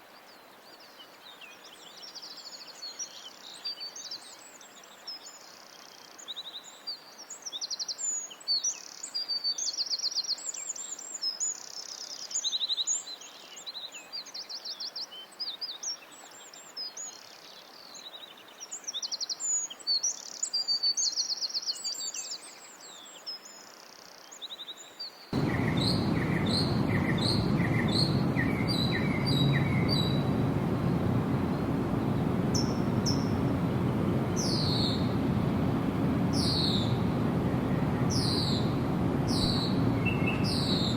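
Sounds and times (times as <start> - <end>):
songbirds chirping and trilling: 25.0 - 40.9
rushing background noise: 25.4 - 40.9
sweeping bird calls: 25.4 - 40.9.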